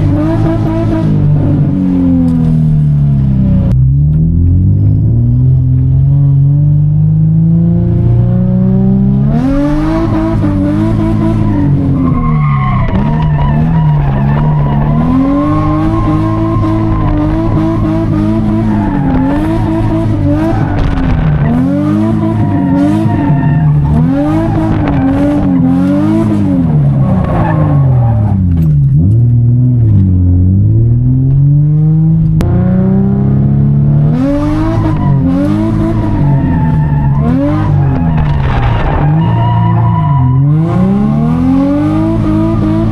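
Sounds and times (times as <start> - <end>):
car engine revving: 0.0 - 42.9
tyres squealing and skidding: 9.4 - 28.8, 34.2 - 42.9.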